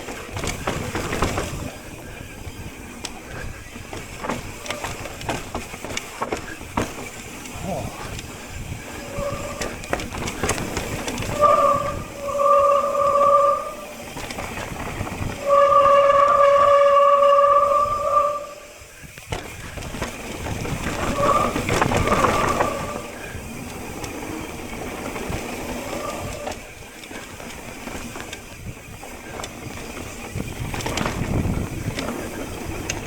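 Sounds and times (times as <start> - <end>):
tyres rattling on rough trail: 0.0 - 33.0
bike disc brakes squealing: 0.2 - 19.8, 20.6 - 24.9.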